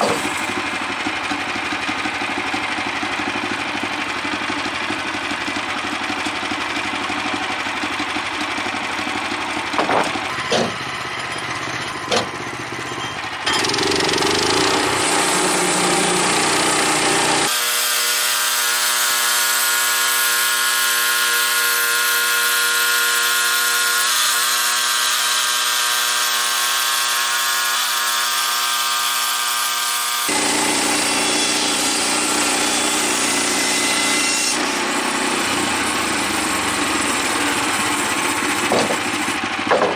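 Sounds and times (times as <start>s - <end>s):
band blade sawing timber: 0.0s - 11.0s, 13.5s - 39.9s
gas engine running: 0.0s - 17.5s, 34.8s - 39.9s
sharp knocks: 9.7s - 10.9s, 12.1s - 12.4s, 38.6s - 39.9s.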